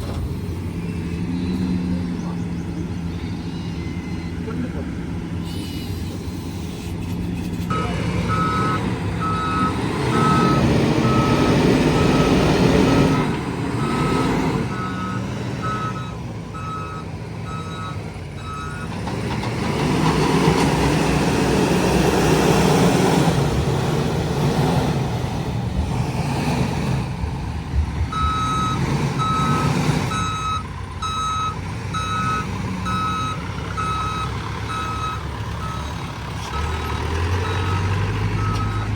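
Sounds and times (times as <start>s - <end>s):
wheel loader diesel engine revving: 0.0s - 38.9s
reversing alarm beeping: 0.8s - 4.7s, 7.7s - 19.0s, 28.0s - 38.9s.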